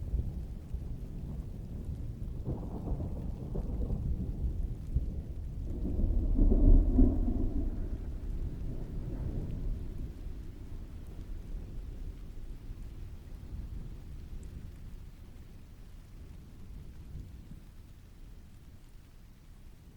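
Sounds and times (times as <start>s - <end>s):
distant thunder rolling: 0.0s - 17.9s
heavy rain: 0.0s - 19.9s.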